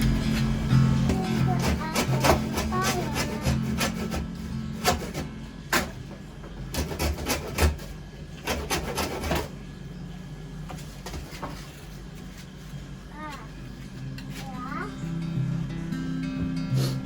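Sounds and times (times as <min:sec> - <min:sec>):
acoustic guitar music: 0:00.0 - 0:07.8, 0:14.0 - 0:17.0.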